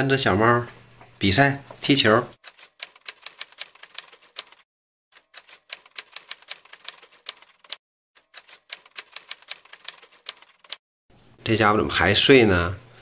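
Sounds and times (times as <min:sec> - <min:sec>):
rapid sharp clicking: 0:02.4 - 0:04.6, 0:05.2 - 0:10.8.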